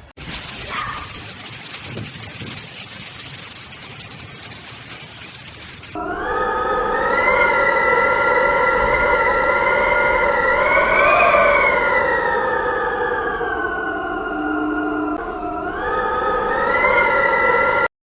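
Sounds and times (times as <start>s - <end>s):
low rushing noise: 6.0s - 17.9s
siren wailing: 6.0s - 17.9s.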